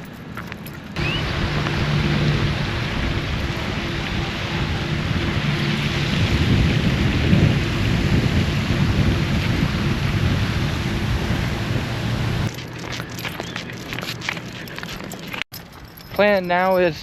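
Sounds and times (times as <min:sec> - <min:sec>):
low rumble: 0:01.0 - 0:12.5
steady rain: 0:01.0 - 0:12.5.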